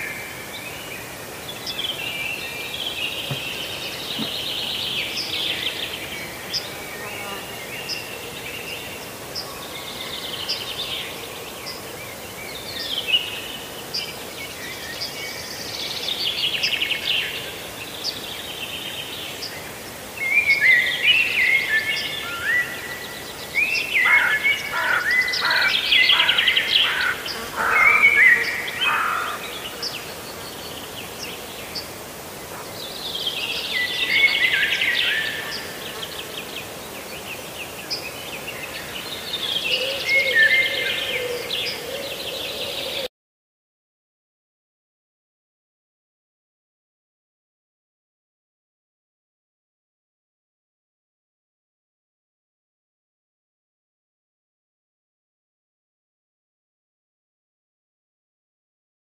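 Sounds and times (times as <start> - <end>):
songbirds chirping and trilling: 0.2 - 43.1.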